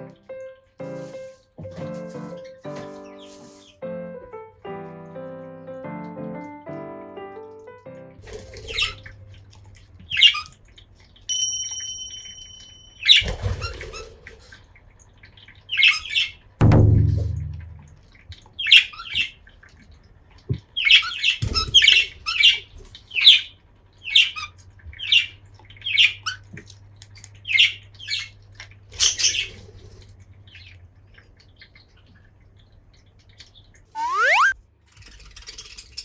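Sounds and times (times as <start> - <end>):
loud low thud: 16.6 - 18.0.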